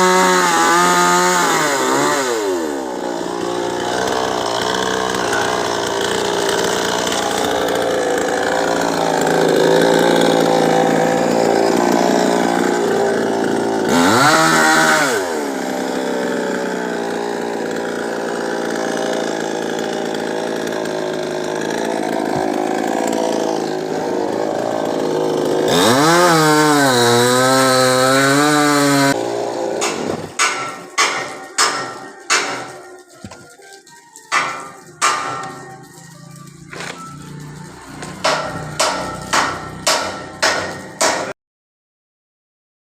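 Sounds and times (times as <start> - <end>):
chainsaw cutting wood: 0.0 - 41.4
sharp knocks: 29.8 - 33.4, 34.3 - 35.7, 38.1 - 41.3.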